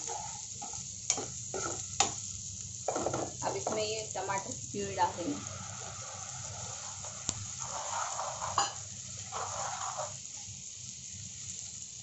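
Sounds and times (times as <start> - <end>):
ladle stirring in pan: 0.0 - 3.9, 4.8 - 10.5
puree sizzling in hot oil: 0.0 - 12.0.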